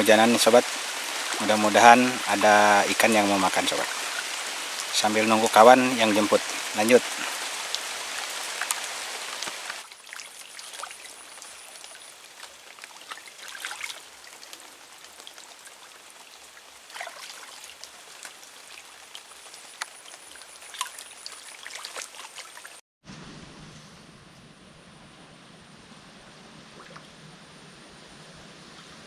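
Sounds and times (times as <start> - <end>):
rain hissing: 0.0 - 13.4
raindrops ticking: 10.4 - 22.1.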